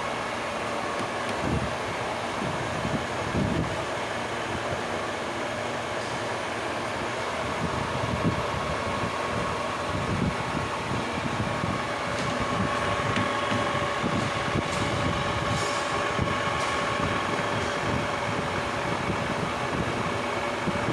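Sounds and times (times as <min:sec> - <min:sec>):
lathe whine and rumble: 0:00.0 - 0:20.9.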